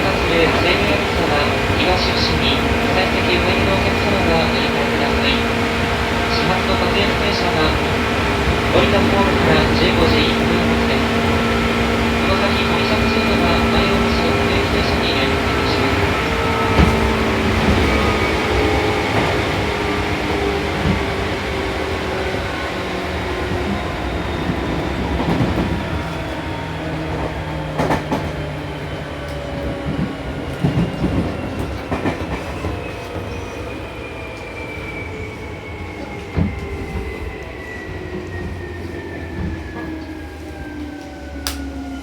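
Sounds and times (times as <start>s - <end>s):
train motor whine: 0.0s - 26.7s
train running rumble: 0.0s - 42.0s.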